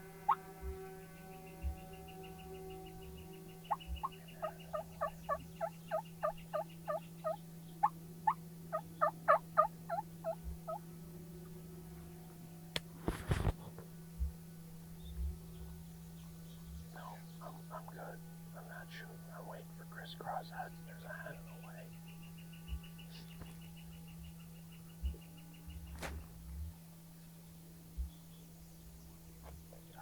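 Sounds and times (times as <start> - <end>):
wild turkey yelping: 3.7 - 10.8.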